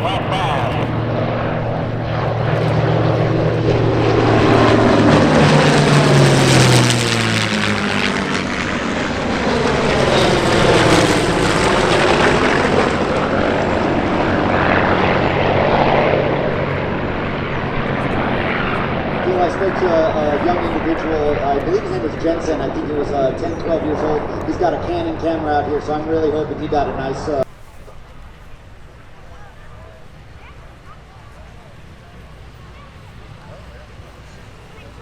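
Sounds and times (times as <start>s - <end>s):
propeller plane flying past: 0.0s - 27.4s, 28.5s - 35.0s.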